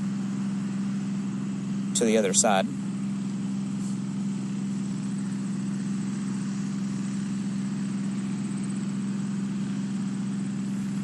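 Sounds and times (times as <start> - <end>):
motor hum: 0.0 - 11.0
faint high whine: 2.0 - 2.9.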